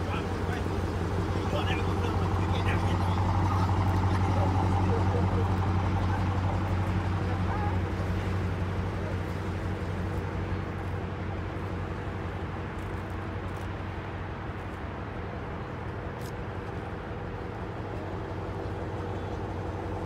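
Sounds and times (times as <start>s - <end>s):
car engine idling: 0.0s - 12.8s, 17.5s - 20.0s.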